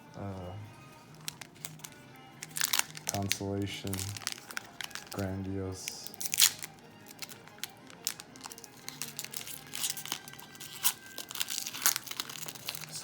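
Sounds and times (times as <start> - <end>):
foil wrappers crinkling: 0.2 - 13.0
trading cards flicking and snapping: 1.1 - 13.0.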